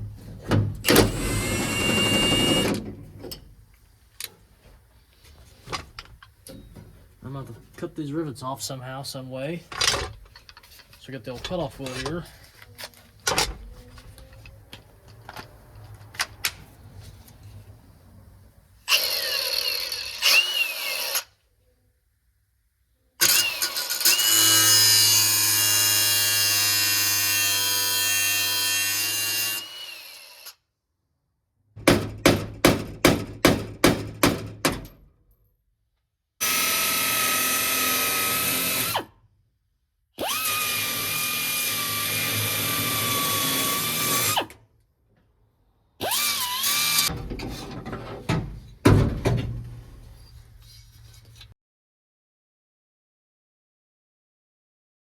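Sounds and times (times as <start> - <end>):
power tool whining: 0.9 - 2.8, 36.4 - 39.1, 40.2 - 44.5, 46.0 - 47.1.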